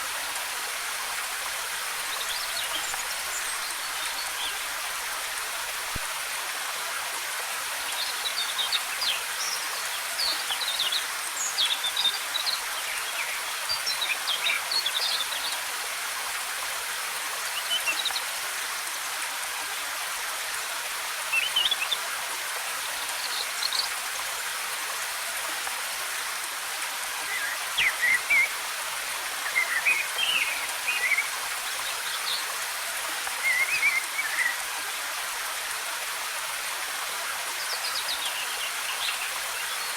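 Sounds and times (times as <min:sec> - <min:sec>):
waterfall rushing: 0:26.6 - 0:39.9.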